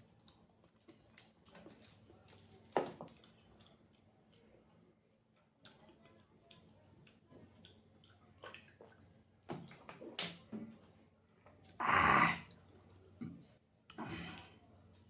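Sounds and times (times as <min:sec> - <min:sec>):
person chewing food: 0:00.0 - 0:04.6, 0:05.6 - 0:09.1.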